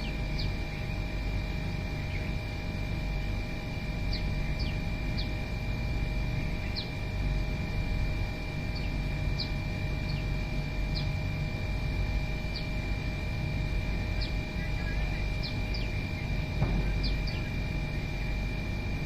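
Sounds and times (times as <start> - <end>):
small bird chirping: 0.0 - 2.4, 4.1 - 5.4, 6.5 - 7.0, 8.7 - 10.3, 10.9 - 11.2, 12.5 - 12.8, 13.8 - 18.4
steady low rumble: 0.0 - 19.0.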